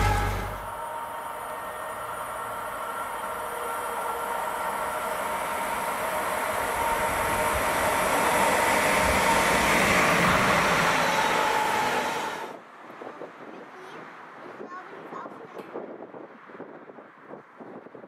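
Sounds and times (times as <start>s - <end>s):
steady high tones: 0.0s - 12.6s
train rumble approaching: 0.0s - 13.2s.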